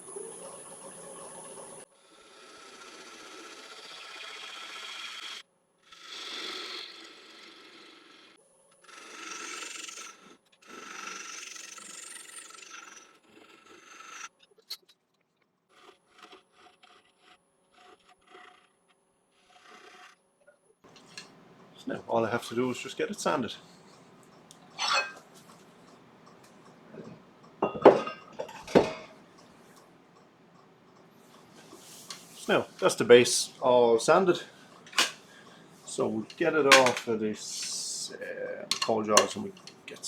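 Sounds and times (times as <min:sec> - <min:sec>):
gouge cutting wood on a lathe: 0:02.0 - 0:05.4, 0:15.7 - 0:20.2.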